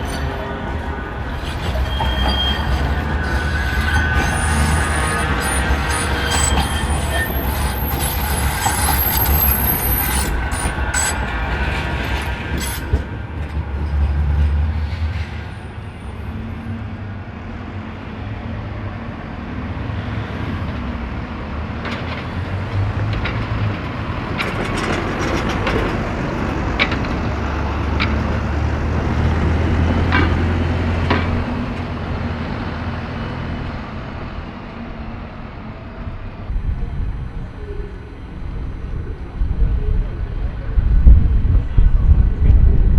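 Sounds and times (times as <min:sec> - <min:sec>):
tram wheels squealing on rails: 0:00.0 - 0:17.0
tram low rumble: 0:00.0 - 0:42.9.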